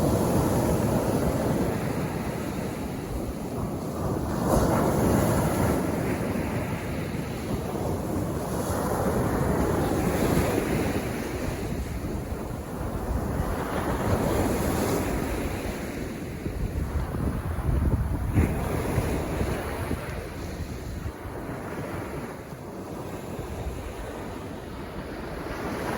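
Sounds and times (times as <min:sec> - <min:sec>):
waves breaking on beach: 0:00.0 - 0:25.9.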